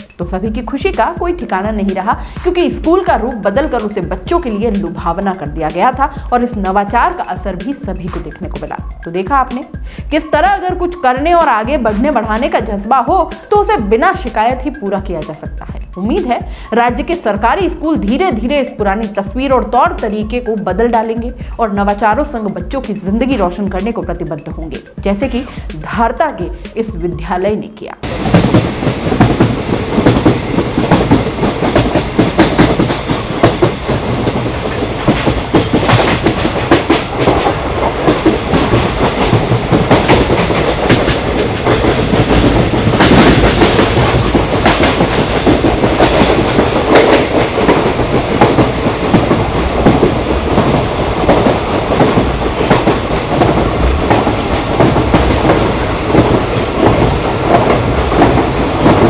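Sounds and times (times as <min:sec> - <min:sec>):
train rumbling on rails: 0:28.0 - 0:59.0
wheels clickety-clack: 0:28.0 - 0:59.0.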